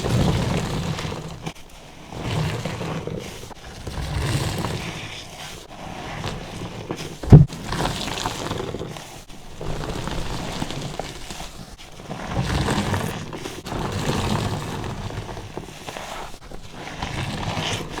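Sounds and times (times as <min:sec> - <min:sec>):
sharp low thump: 0:07.2 - 0:07.6.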